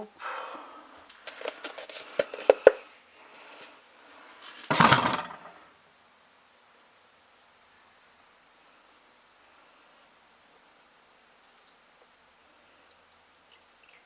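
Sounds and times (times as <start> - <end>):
handling clicks and knocks: 4.7 - 5.6.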